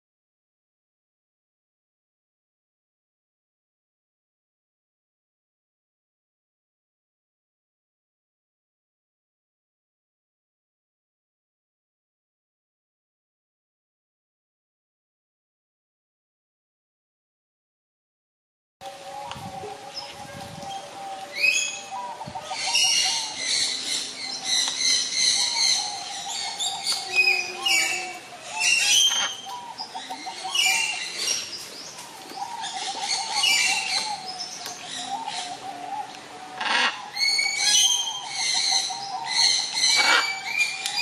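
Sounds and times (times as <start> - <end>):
birds chirping: 18.8 - 41.0
low warbling bird call: 18.8 - 41.0.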